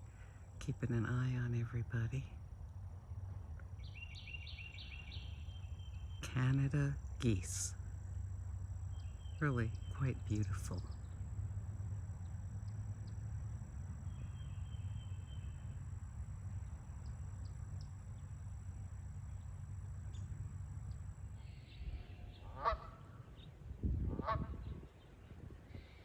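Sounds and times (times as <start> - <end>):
low rumble: 0.0 - 26.0
goose honking: 21.6 - 23.2.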